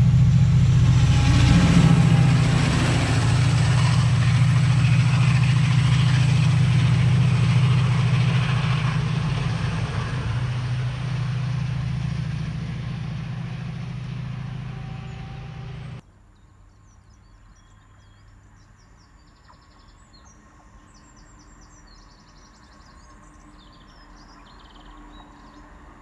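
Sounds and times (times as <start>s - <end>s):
diesel train engine hum: 0.0s - 16.0s
small birds chirping: 0.1s - 16.0s.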